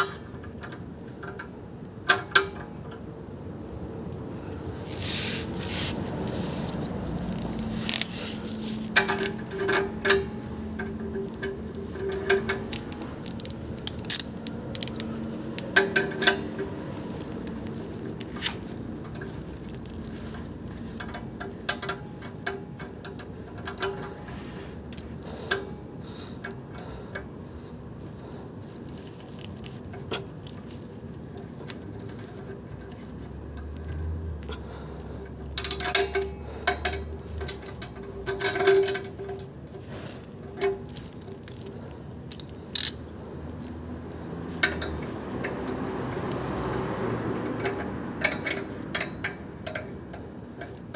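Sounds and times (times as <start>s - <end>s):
hand tools clinking on metal: 42.3s - 43.2s.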